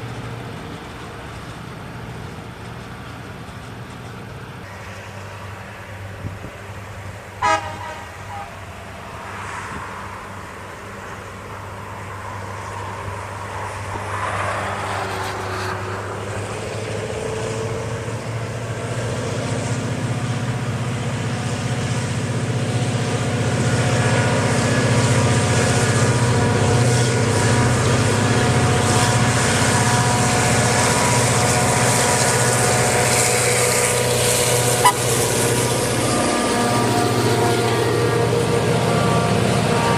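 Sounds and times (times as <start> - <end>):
train running noise: 0.0 - 39.9
train horn toot: 7.4 - 8.6, 34.6 - 39.9.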